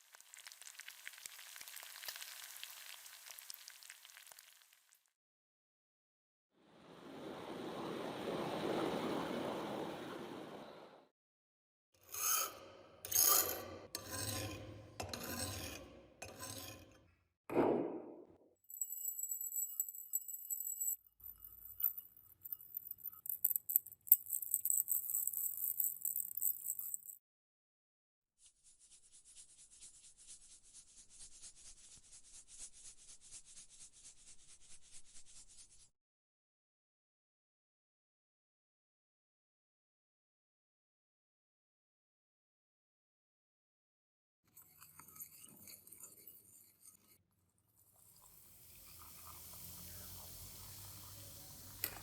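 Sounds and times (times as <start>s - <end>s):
file rasping strokes: 12.0s - 17.0s, 44.6s - 47.2s
hand sanding strokes: 28.4s - 35.9s.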